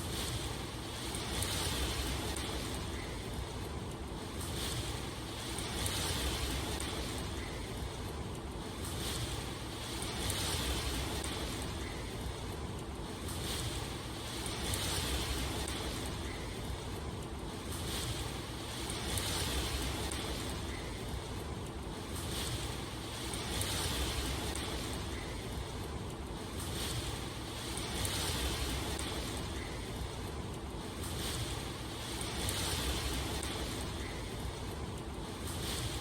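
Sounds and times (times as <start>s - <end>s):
rushing water: 0.0s - 36.0s.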